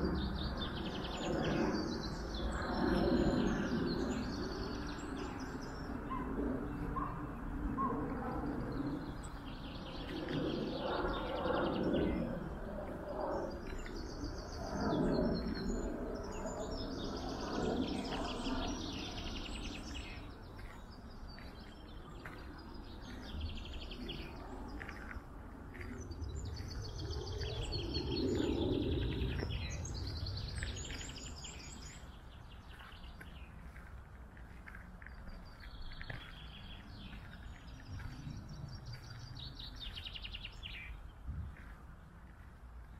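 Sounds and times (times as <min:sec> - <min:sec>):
small songbirds singing: 0:00.0 - 0:41.9.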